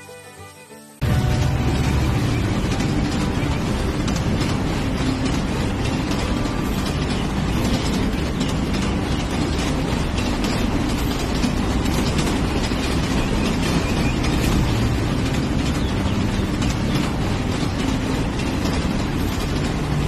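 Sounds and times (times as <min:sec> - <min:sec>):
dense rattle of rapid clicks: 0:01.0 - 0:20.0
low engine rumble: 0:01.0 - 0:20.0.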